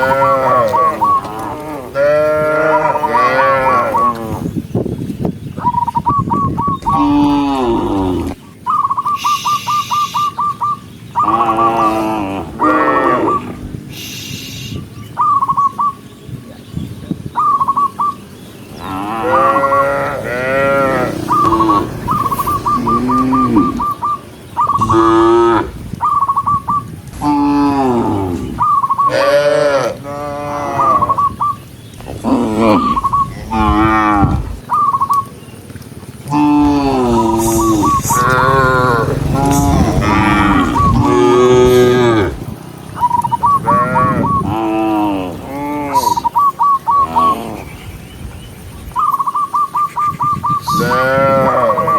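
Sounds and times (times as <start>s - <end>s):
cows mooing: 0.0s - 4.6s, 6.8s - 8.4s, 11.2s - 13.8s, 18.7s - 26.1s, 27.1s - 34.8s, 36.2s - 42.6s, 43.4s - 46.4s, 47.0s - 47.8s, 50.6s - 51.9s
short high chirping call: 8.7s - 11.3s.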